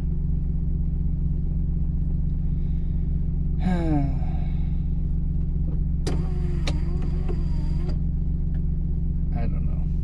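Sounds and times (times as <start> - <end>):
diesel engine droning: 0.0 - 10.0
person sighing: 3.6 - 4.8.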